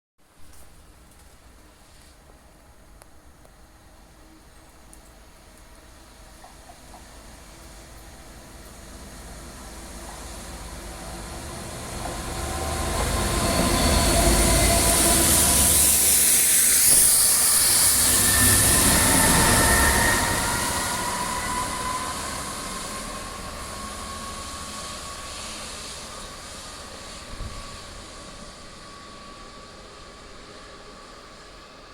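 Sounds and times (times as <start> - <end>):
locomotive engine rumble: 2.9 - 30.0
strong high hiss: 7.1 - 31.9
long high-pitched sliding tones: 10.6 - 29.8.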